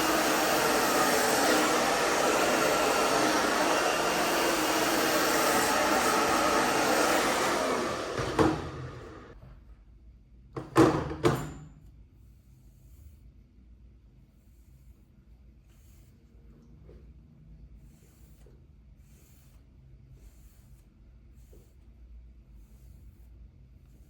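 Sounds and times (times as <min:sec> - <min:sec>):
hairdryer blowing: 0:00.0 - 0:09.4.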